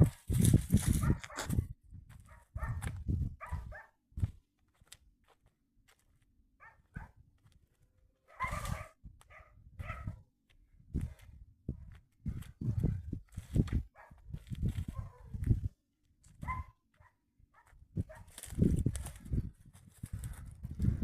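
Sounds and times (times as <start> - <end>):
dog barking: 1.0 - 1.5, 2.3 - 4.0, 6.6 - 7.2, 8.2 - 10.2, 13.9 - 14.2, 14.9 - 15.4, 16.4 - 18.3.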